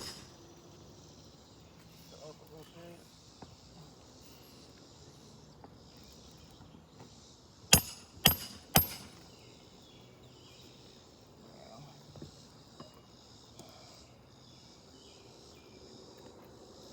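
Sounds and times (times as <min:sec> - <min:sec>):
hammer blows on roof shingle: 0:00.0 - 0:00.3, 0:07.7 - 0:09.2.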